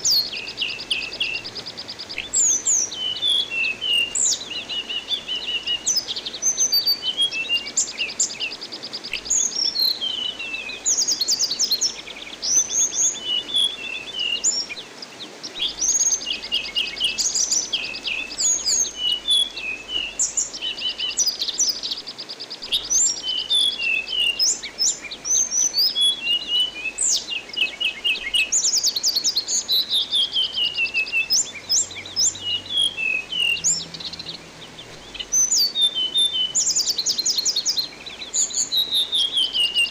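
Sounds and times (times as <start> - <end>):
faint rush of water: 0.0 - 39.9.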